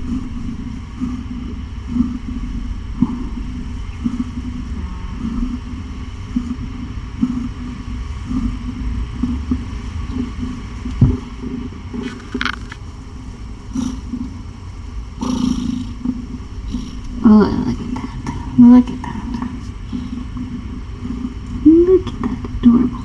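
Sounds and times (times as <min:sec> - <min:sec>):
cat purring: 0:00.0 - 0:23.0
rustling: 0:10.1 - 0:12.9.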